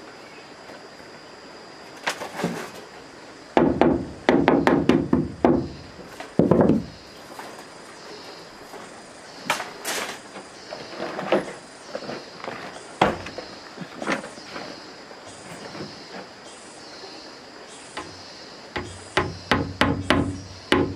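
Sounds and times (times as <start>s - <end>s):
knocks and thuds: 3.6s - 7.0s, 13.0s - 13.5s, 18.8s - 20.9s.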